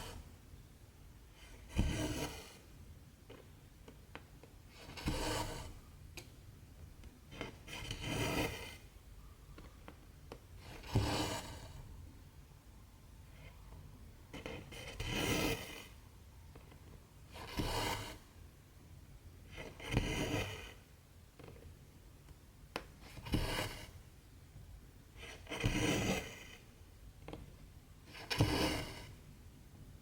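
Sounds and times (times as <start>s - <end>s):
thread rasping through fabric: 4.8s - 5.8s.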